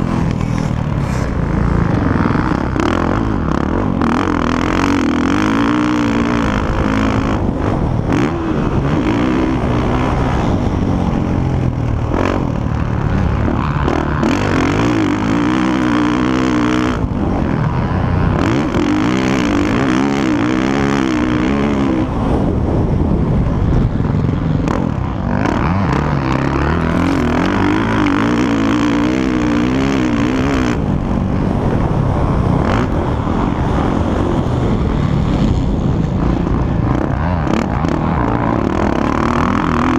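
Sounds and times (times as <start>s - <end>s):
motocross bike engines revving: 0.0s - 39.9s.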